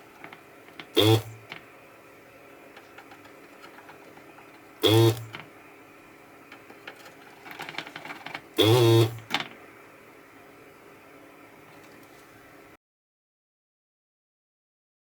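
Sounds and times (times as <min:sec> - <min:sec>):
loud mechanical buzz: 0:00.9 - 0:01.6, 0:04.8 - 0:05.4, 0:08.6 - 0:09.4.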